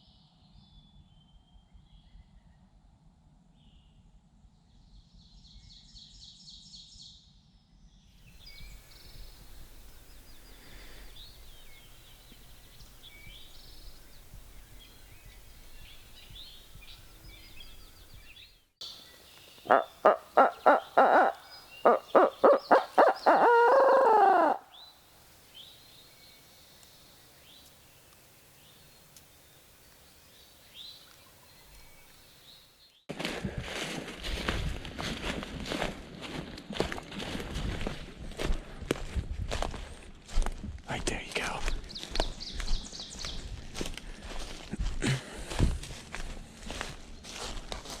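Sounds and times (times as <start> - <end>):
small songbirds chirping: 8.2 - 33.1, 41.5 - 43.9
owl hooting: 19.7 - 25.7.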